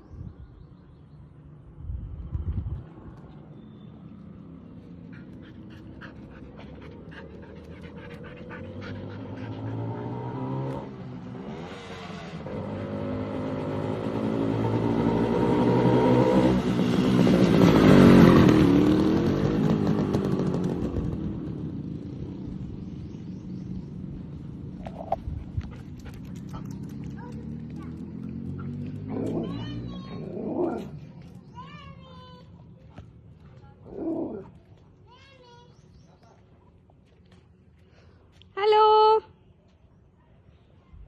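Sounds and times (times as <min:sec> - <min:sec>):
motorcycle engine passing by: 0:02.9 - 0:34.8.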